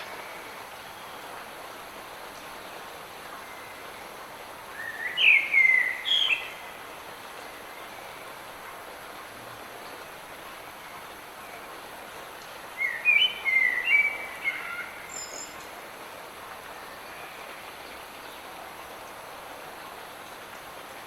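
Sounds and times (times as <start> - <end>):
light rain hissing: 0.0 - 21.0
songbird chirping: 12.8 - 15.8.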